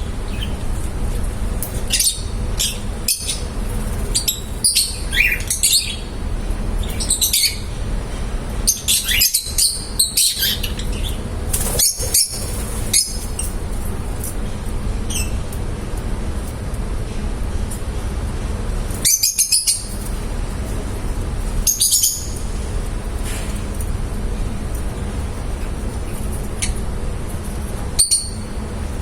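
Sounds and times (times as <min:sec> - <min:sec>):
lovebirds chirping: 0:00.0 - 0:00.8, 0:01.6 - 0:13.6, 0:21.6 - 0:22.5
low background hum: 0:00.0 - 0:29.0.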